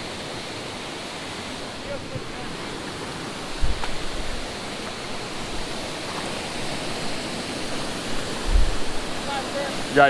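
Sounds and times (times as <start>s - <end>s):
waterfall rushing: 0.0s - 10.0s
low thumps: 3.4s - 7.1s, 7.7s - 9.3s.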